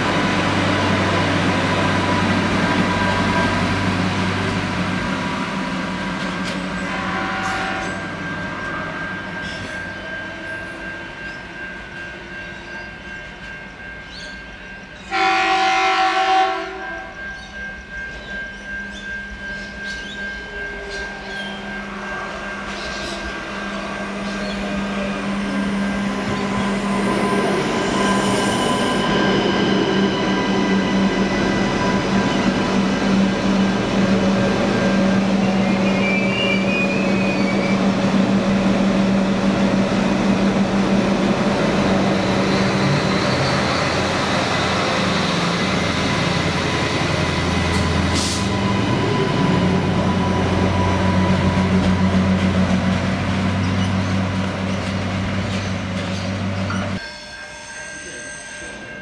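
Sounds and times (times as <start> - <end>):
train running hum: 0.0 - 57.2
wheel squeal: 34.8 - 37.9.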